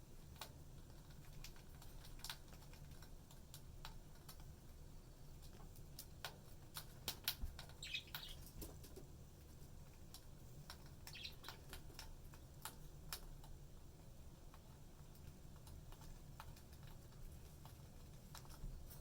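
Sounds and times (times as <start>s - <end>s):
soft bird chirps: 7.6s - 8.5s, 11.0s - 11.7s.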